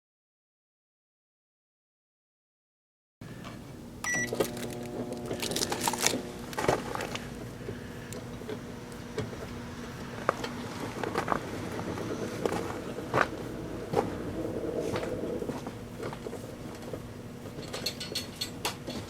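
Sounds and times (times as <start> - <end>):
microwave oven humming: 3.2 - 19.0
microwave beep: 4.0 - 5.5.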